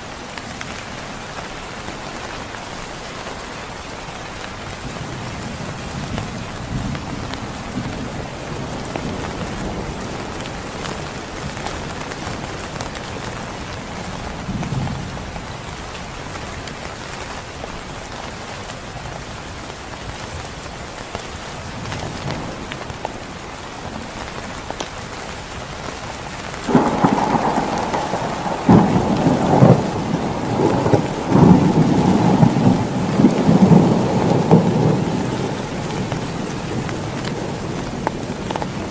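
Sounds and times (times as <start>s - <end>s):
heavy rain: 0.0s - 38.9s
close thunderclap: 26.7s - 38.9s
distant thunder rumbling: 26.7s - 38.9s.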